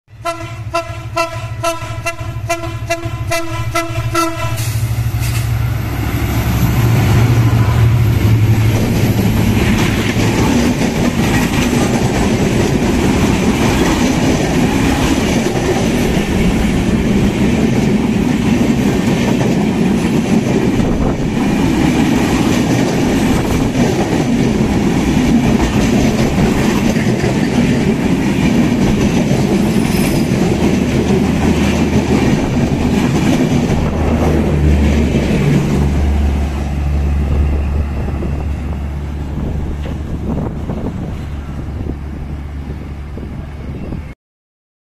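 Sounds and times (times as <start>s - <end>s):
passenger coaches rumbling past: 0.1s - 44.2s
train horn short pulses: 0.2s - 5.6s
clickety-clack of wheels: 8.7s - 33.9s.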